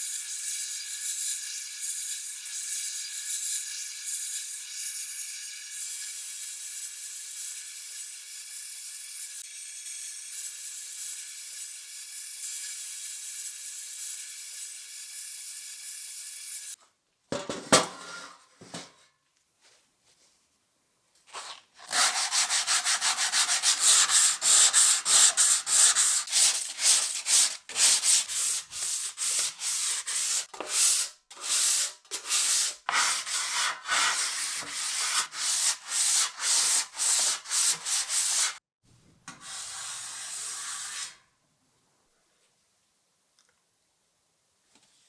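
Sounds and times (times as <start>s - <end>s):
hand sanding strokes: 21.8s - 38.6s, 39.4s - 41.2s.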